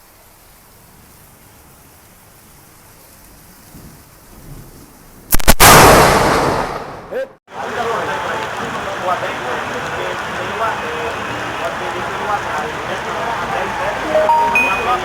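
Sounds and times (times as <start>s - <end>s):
faint steady hiss: 0.0s - 5.4s
thunderclap: 3.7s - 7.2s.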